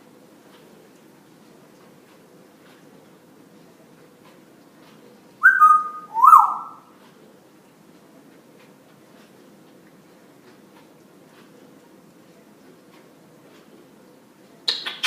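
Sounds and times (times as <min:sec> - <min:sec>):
parrot whistling: 0:05.4 - 0:06.8.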